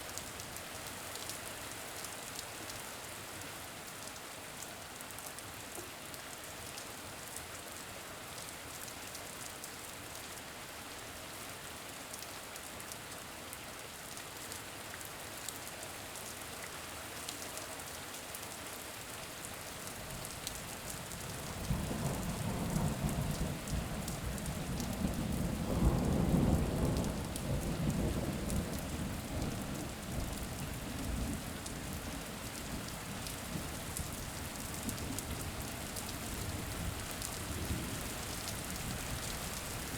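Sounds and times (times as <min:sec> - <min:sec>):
steady rain falling: 0:00.0 - 0:39.9
low roll of thunder: 0:21.4 - 0:31.5.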